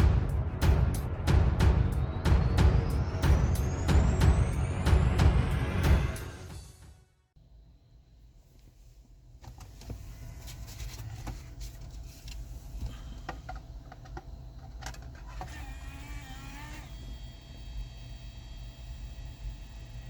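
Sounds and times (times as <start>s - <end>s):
low hum: 0.0s - 8.7s
small motor whine: 15.2s - 20.0s.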